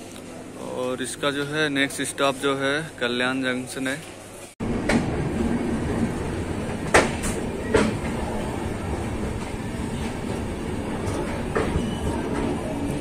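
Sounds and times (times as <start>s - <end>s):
train rumble: 4.6s - 13.0s.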